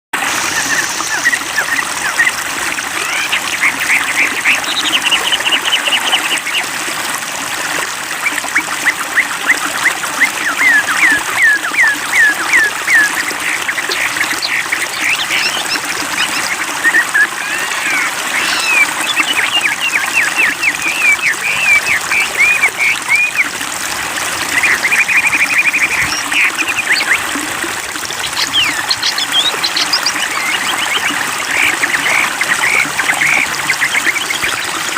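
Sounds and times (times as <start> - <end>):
stream rushing and trickling: 0.2 - 34.9
bird calling sweeping notes: 8.2 - 23.5, 28.2 - 34.9.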